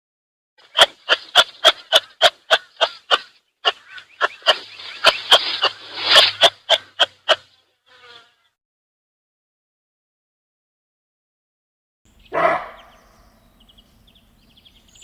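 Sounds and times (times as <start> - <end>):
animal short sharp calls: 0.7 - 7.5, 12.2 - 13.5.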